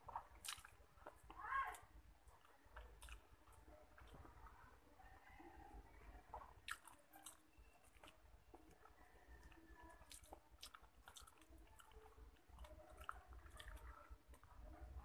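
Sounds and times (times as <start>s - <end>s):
faint chewing: 0.0s - 15.0s
wet mouth clicks: 6.3s - 8.7s.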